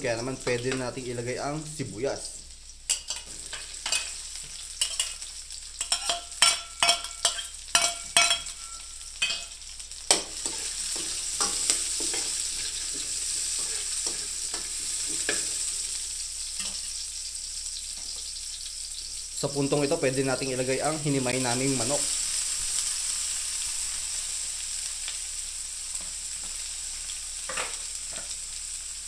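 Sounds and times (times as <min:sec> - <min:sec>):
onions sizzling in hot oil: 0:00.0 - 0:29.0
metal ladle scraping a wok: 0:10.4 - 0:15.5.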